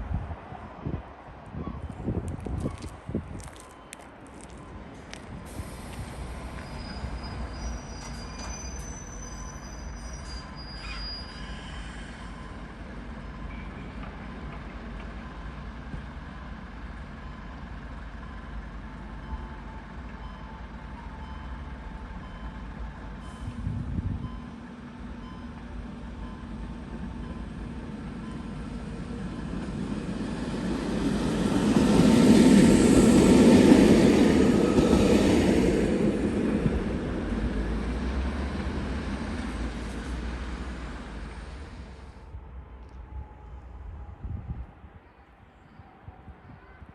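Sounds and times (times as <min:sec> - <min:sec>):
train approaching rumble and hiss: 0:00.0 - 0:46.9
train wheels squealing on rail: 0:01.6 - 0:03.0, 0:05.5 - 0:14.6, 0:19.2 - 0:24.6, 0:26.2 - 0:36.2.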